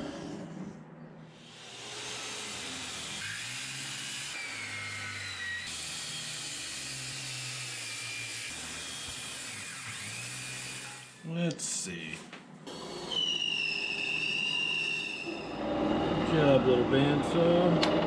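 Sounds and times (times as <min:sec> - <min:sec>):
bandsaw cutting wood: 0:01.4 - 0:11.2.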